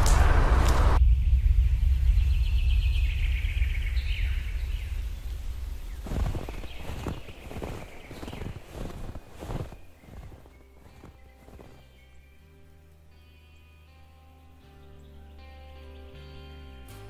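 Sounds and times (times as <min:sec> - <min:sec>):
low rumble: 0:00.0 - 0:11.8.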